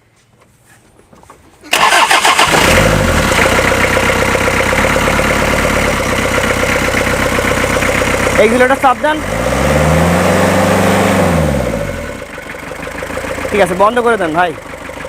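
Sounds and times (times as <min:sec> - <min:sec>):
starter motor cranking: 0:01.7 - 0:08.9
diesel engine idling: 0:01.7 - 0:15.0.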